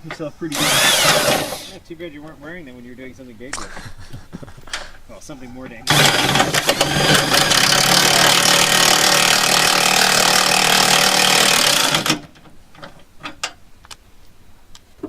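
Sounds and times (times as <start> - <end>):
power tool running: 0.5 - 1.8, 5.9 - 12.4.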